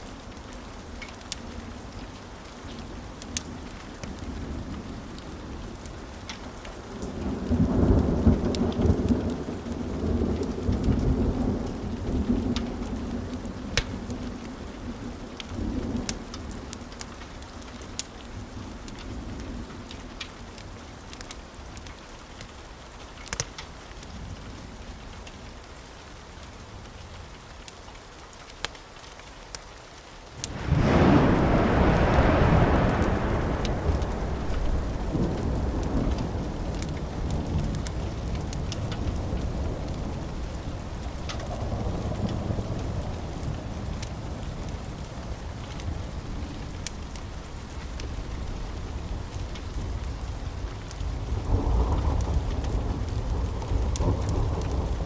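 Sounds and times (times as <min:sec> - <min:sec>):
steady rain: 0:00.0 - 0:55.0
wood fire crackling: 0:00.0 - 0:55.0
thunder rumbling: 0:06.8 - 0:17.1, 0:30.4 - 0:55.0.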